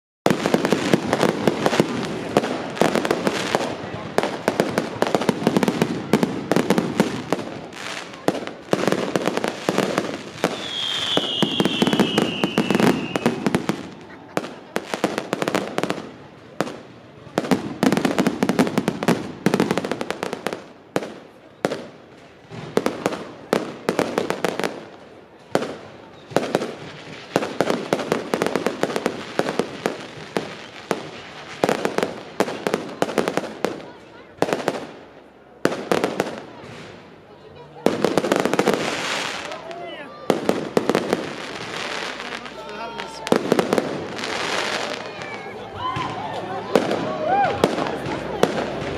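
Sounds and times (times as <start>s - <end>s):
fireworks bangs and crackling: 0.2s - 48.9s
falling firework whistle: 10.4s - 13.6s.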